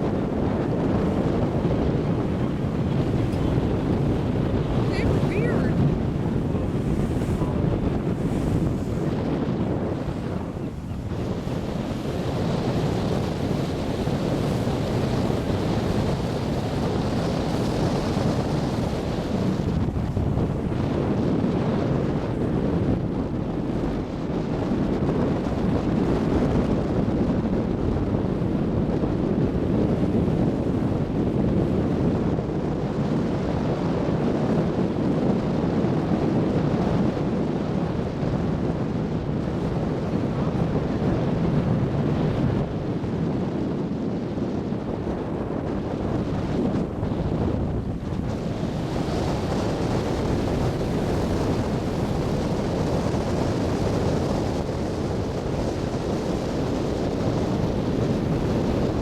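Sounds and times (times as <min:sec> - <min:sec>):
water rushing past hull: 0:00.0 - 0:26.9
boat engine rumble: 0:00.0 - 0:59.0
wind buffeting microphone: 0:00.0 - 0:59.0.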